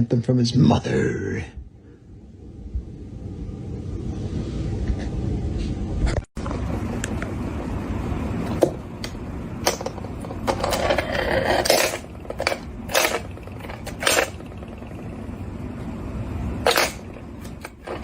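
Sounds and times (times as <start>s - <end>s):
low rumble: 1.4s - 8.4s
clinks and clatters of hard objects: 9.7s - 15.0s.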